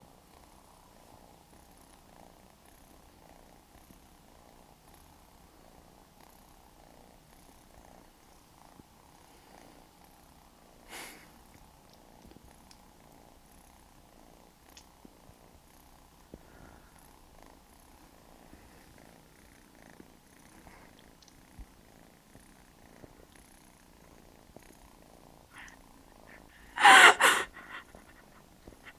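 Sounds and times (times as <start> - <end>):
cat crying: 26.6 - 28.3.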